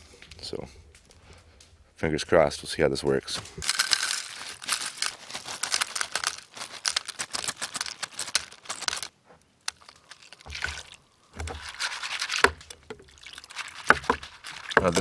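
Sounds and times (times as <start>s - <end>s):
dry clicks and crackles: 0.0s - 15.0s
handling rustles and bumps: 0.0s - 15.0s
crinkling plastic bag: 3.1s - 15.0s.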